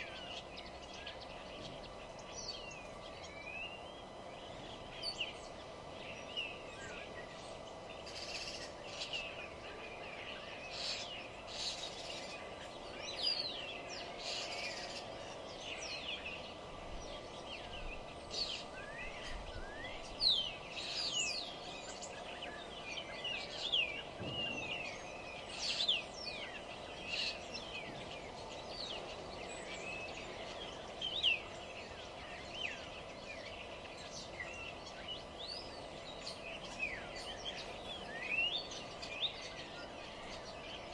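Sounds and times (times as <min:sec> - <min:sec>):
songbirds chirping and singing: 0:00.0 - 0:40.9
steady low hum: 0:00.0 - 0:40.9.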